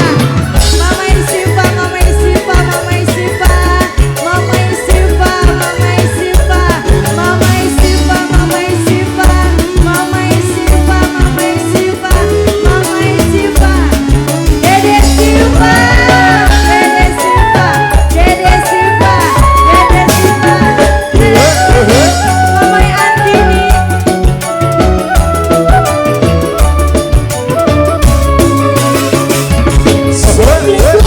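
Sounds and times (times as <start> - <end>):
fast rattling percussion: 0.0 - 31.0
live band music: 0.0 - 31.0
sliding melody notes: 0.0 - 31.0.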